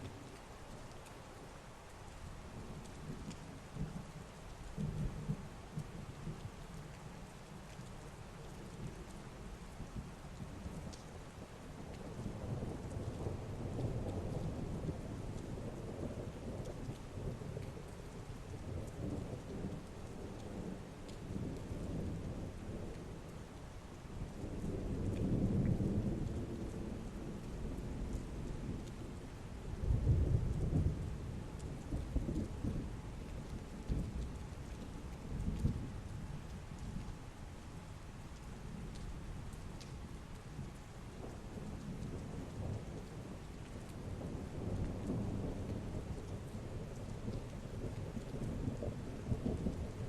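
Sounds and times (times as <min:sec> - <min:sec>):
heavy rain falling: 0:00.0 - 0:50.0
low rolling thunder: 0:24.2 - 0:37.1, 0:40.6 - 0:50.0.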